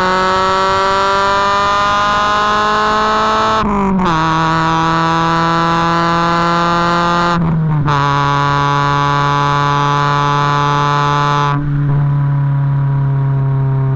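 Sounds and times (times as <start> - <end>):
car engine droning at steady revs: 0.0 - 13.9.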